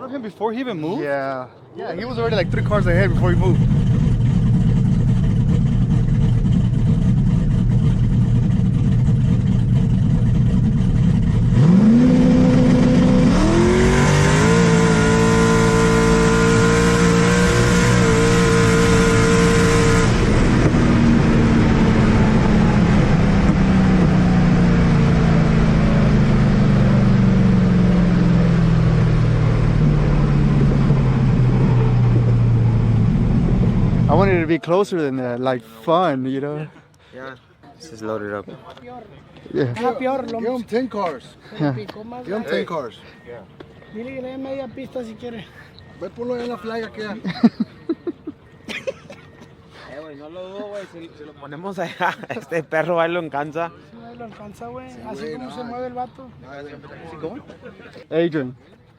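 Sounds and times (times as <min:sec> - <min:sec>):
car engine revving: 0:02.0 - 0:34.6.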